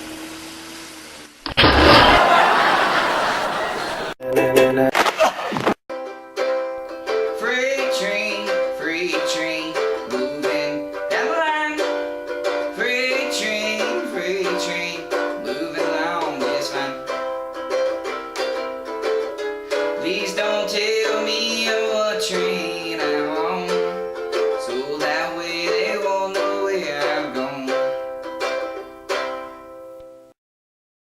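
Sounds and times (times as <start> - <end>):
ukulele playing: 5.9 - 30.3
person singing: 7.1 - 29.3.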